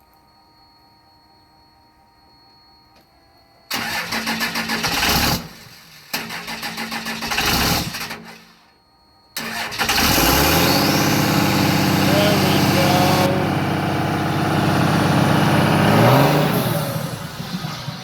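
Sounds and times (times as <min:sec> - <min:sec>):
starter motor cranking: 0:03.7 - 0:08.4, 0:09.4 - 0:18.0
diesel engine running: 0:09.4 - 0:18.0.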